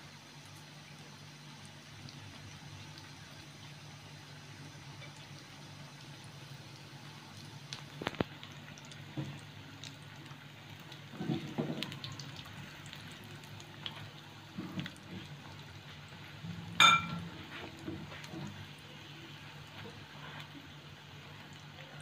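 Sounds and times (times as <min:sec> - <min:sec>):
bread sizzling in hot oil: 0:00.0 - 0:22.0
low steady hum: 0:00.0 - 0:22.0
sharp ringing clink: 0:16.8 - 0:17.2.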